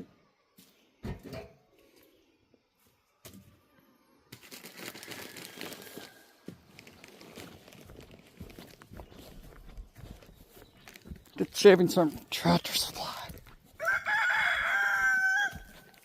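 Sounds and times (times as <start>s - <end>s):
plastic bag crinkling: 4.4s - 9.2s.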